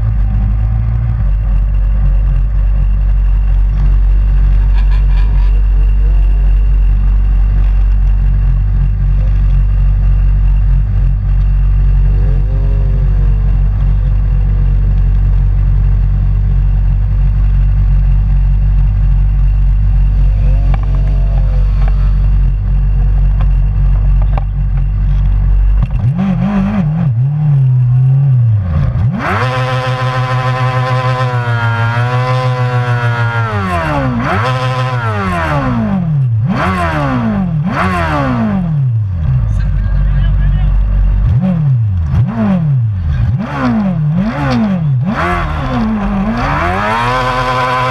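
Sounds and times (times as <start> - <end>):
low rumble: 0.0 - 47.9
motorcycle engine revving close: 7.5 - 15.6, 19.5 - 47.9
distant motorcycles passing: 20.0 - 24.9, 40.7 - 47.9.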